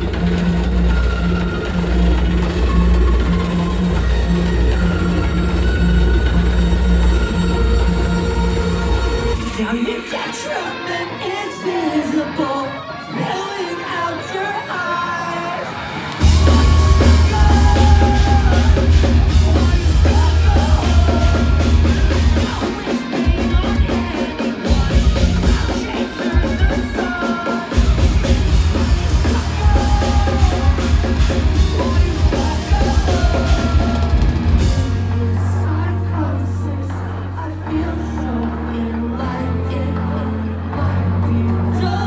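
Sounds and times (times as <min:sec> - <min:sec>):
heavy drums: 0:00.0 - 0:09.8, 0:15.8 - 0:36.4
rock band playing live: 0:00.0 - 0:42.0
person singing: 0:08.6 - 0:42.0.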